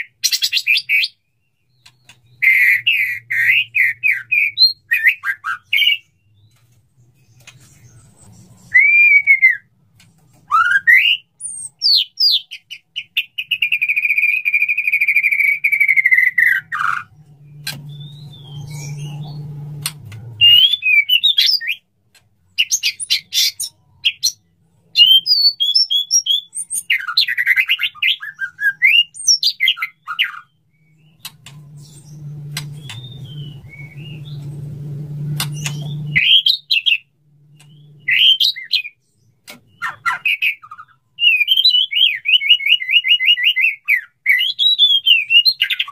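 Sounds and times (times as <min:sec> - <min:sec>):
bird singing whistled phrases: 0:08.6 - 0:09.7, 0:10.5 - 0:19.4, 0:20.4 - 0:21.8, 0:25.0 - 0:34.5, 0:35.6 - 0:37.1, 0:37.7 - 0:39.0, 0:39.8 - 0:45.9
low hum: 0:31.0 - 0:36.3.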